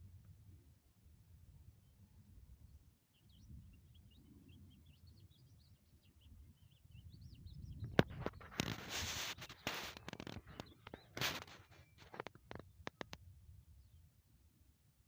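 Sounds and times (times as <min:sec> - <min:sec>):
small birds chirping: 0:01.7 - 0:14.5
loud rustling burst: 0:08.0 - 0:12.2
sharp clicks: 0:08.0 - 0:13.2.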